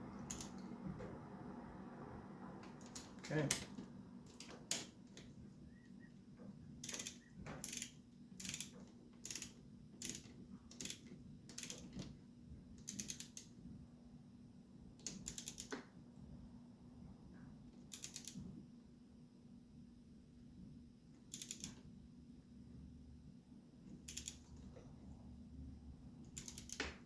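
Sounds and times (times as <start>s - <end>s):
ratchet wrench clicking: 0.3s - 0.6s, 6.8s - 12.0s, 12.8s - 13.5s, 15.0s - 15.8s, 17.9s - 18.4s, 21.3s - 21.8s, 24.1s - 24.5s, 26.3s - 26.9s.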